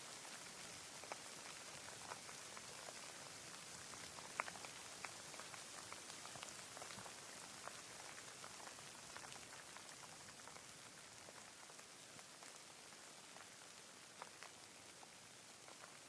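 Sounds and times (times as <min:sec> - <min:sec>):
raindrops ticking: 0:00.4 - 0:16.0.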